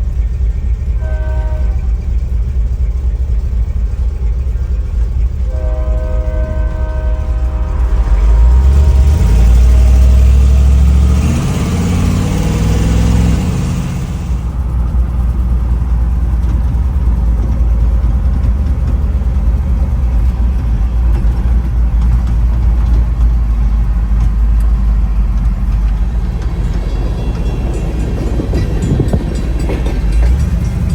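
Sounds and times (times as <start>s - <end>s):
truck engine revving: 7.2s - 30.9s.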